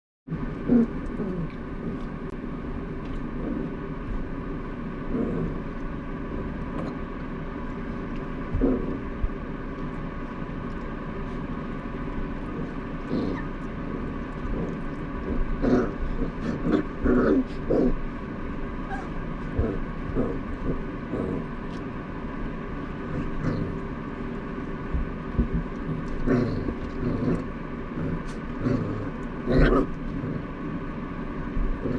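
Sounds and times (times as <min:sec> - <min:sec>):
steady mechanical hum: 0:00.3 - 0:31.9
puppies making short noises: 0:18.8 - 0:21.9.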